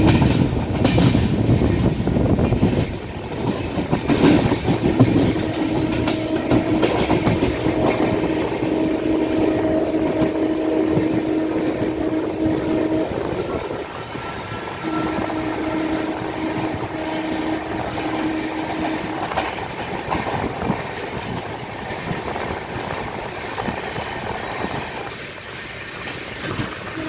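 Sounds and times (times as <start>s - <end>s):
clattering over track: 0.0s - 8.8s
train wheels rumbling on rails: 0.0s - 27.0s.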